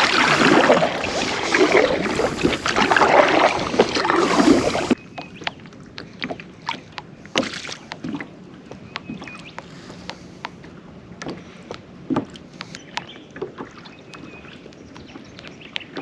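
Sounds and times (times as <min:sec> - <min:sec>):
paddle splashing through water: 0:00.0 - 0:08.4, 0:12.1 - 0:16.0.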